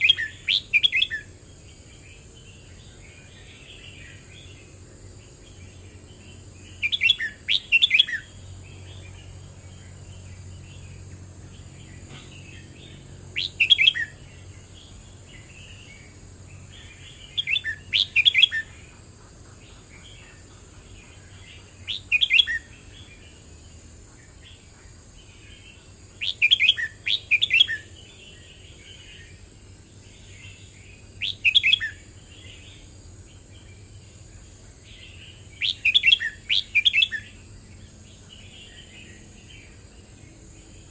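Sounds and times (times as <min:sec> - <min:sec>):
bird whistled song phrases: 0:00.0 - 0:01.3, 0:06.8 - 0:08.3, 0:13.4 - 0:14.2, 0:17.0 - 0:18.7, 0:21.8 - 0:22.7, 0:26.2 - 0:27.9, 0:31.2 - 0:32.0, 0:35.6 - 0:37.3
soft bird chattering: 0:16.8 - 0:23.1.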